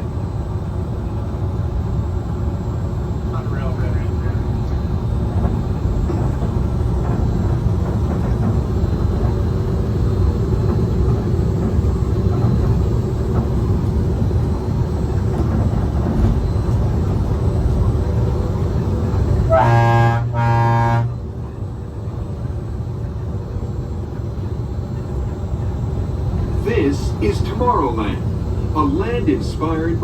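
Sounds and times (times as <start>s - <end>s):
monorail rumbling drone: 0.0s - 30.0s
horn blasts: 19.4s - 21.2s.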